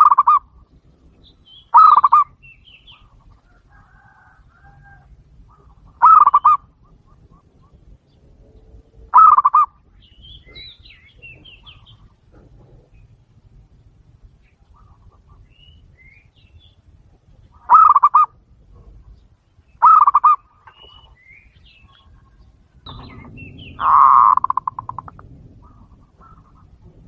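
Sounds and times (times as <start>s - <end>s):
dove cooing: 0.0s - 0.6s, 1.7s - 13.3s, 17.5s - 19.1s, 19.8s - 21.2s, 21.8s - 27.0s.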